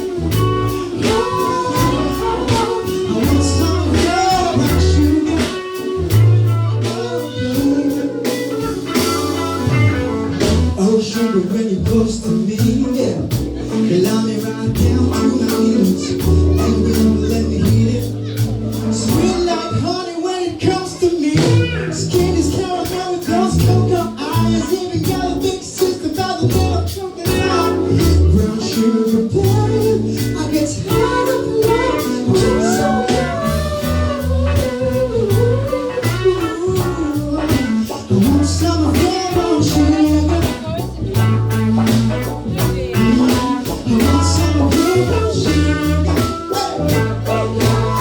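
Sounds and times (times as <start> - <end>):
drum beat: 0.0 - 10.9, 21.4 - 48.0
bass: 0.0 - 48.0
electric guitar: 0.0 - 48.0.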